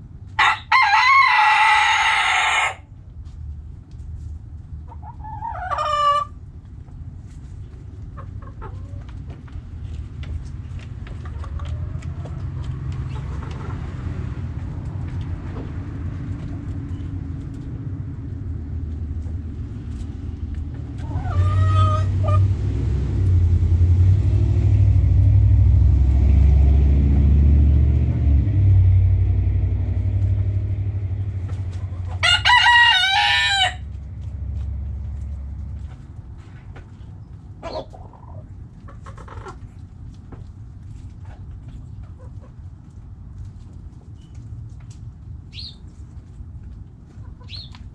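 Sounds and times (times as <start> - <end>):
chicken calls: 0.4 - 2.8, 4.8 - 6.4, 8.1 - 9.2, 11.1 - 14.2, 20.8 - 22.5, 31.5 - 34.0, 37.0 - 39.8, 41.2 - 42.7, 47.1 - 47.9
rooster crowing: 0.4 - 2.9, 32.1 - 33.9
low rumble: 9.2 - 32.2.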